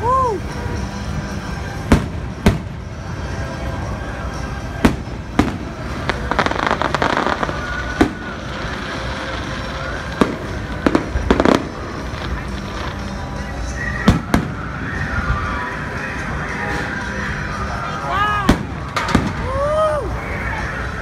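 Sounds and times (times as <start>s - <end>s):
firework crackling: 0.0s - 21.0s
firework booms: 1.9s - 3.0s, 4.8s - 12.9s, 14.0s - 14.8s, 18.5s - 19.6s.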